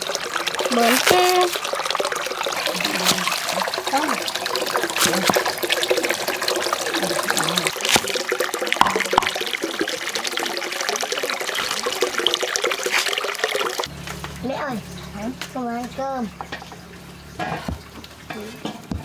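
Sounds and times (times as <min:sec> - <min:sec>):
water running and splashing: 0:00.0 - 0:19.0.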